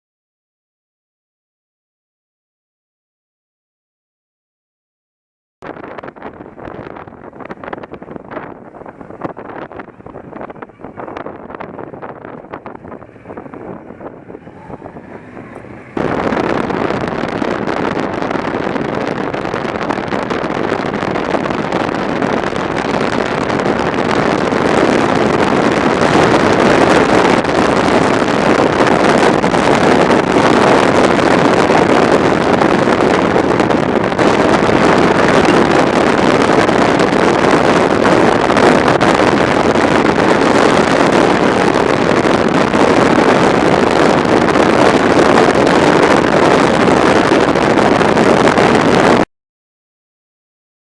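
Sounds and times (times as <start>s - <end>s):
wind rushing on microphone: 5.6s - 49.3s
motorbike engine running: 6.5s - 38.2s.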